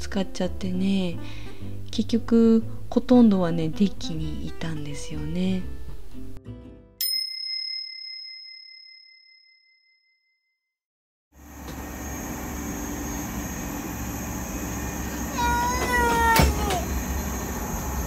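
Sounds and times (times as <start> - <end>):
bell-like ding: 7.0 - 10.4
train running rumble and hiss: 11.4 - 18.0.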